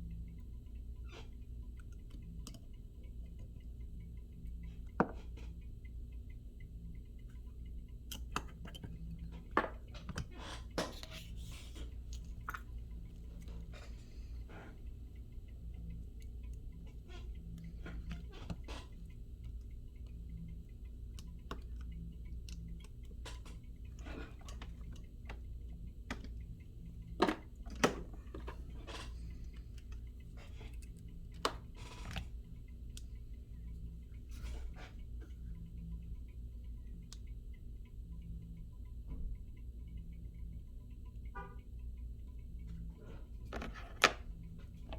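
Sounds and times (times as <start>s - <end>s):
steady low hum: 0.0s - 44.9s
light clicks and taps: 7.0s - 36.1s.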